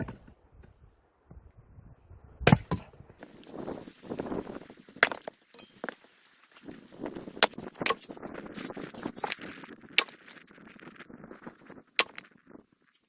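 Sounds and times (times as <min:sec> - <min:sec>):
sharp knocks and clinks: 0:05.5 - 0:05.9.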